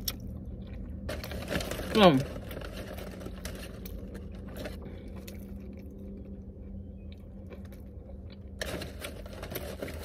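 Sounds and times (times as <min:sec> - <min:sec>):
chewing a burger: 0:00.0 - 0:10.0
steady low hum: 0:00.0 - 0:10.0
paper wrapper handled: 0:01.1 - 0:05.0, 0:08.6 - 0:10.0.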